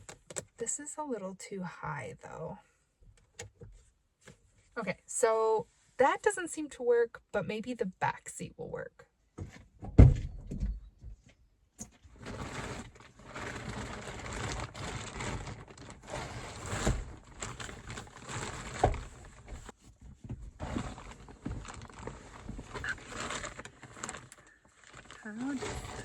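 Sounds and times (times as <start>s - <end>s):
heavy thump: 9.4s - 11.2s.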